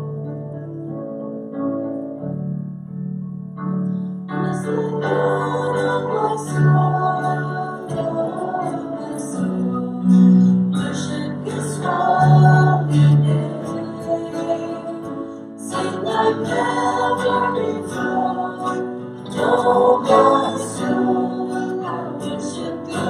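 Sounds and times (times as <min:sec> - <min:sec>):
soft keyboard chords: 0:00.0 - 0:23.0
worship band playing: 0:04.8 - 0:23.0.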